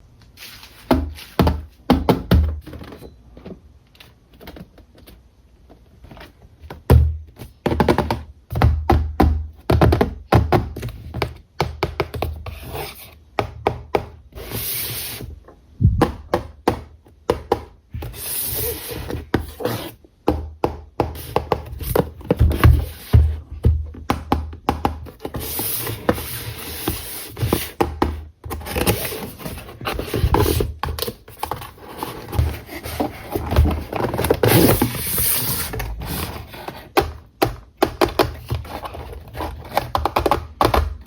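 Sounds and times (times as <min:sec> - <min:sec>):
packaging rustling scrapes: 0:28.5 - 0:37.0
packaging taps and clicks: 0:36.6 - 0:41.0.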